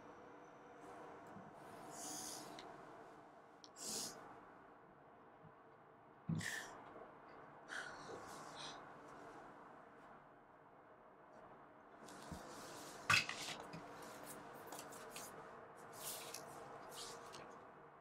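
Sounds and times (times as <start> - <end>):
breathy sighs: 6.4 - 6.8, 7.7 - 8.9.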